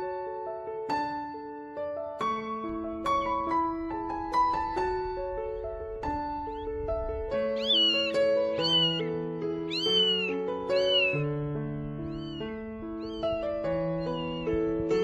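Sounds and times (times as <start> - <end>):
piano background music: 0.0 - 15.0
cat meowing: 7.6 - 9.1, 9.7 - 11.3, 12.0 - 14.6.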